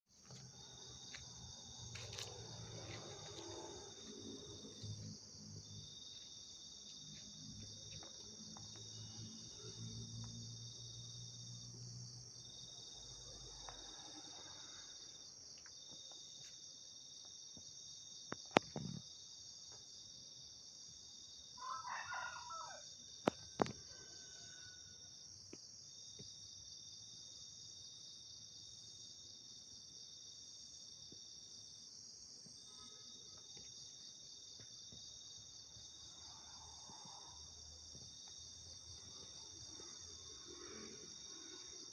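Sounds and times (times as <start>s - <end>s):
crickets and insects chirping: 0.1s - 41.9s
rooster crowing: 21.6s - 25.1s.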